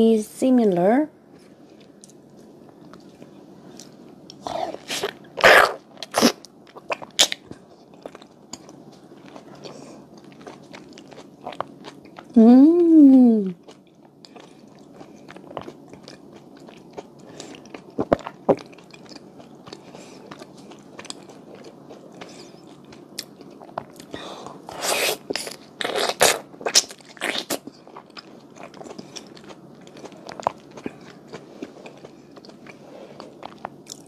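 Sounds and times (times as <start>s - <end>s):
bites and smacks: 4.3s - 8.8s
wet chewing: 13.1s - 24.2s.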